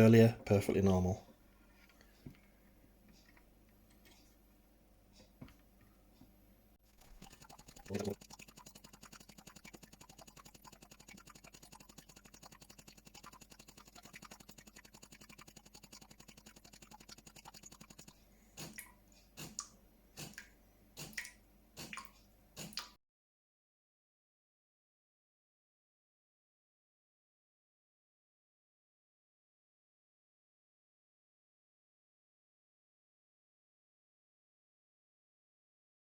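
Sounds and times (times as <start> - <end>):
coffee machine pump pulsing: 6.9 - 18.8
water gurgle: 6.9 - 23.0.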